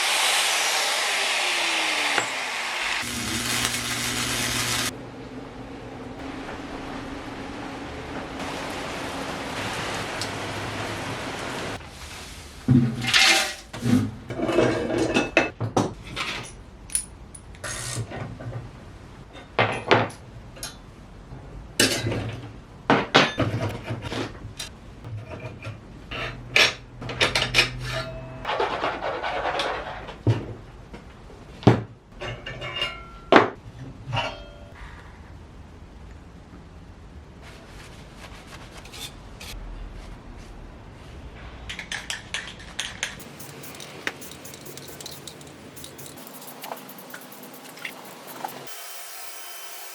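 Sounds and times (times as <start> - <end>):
machine humming: 0.0 - 11.8, 43.2 - 49.9
metal parts clanking: 42.6 - 48.7.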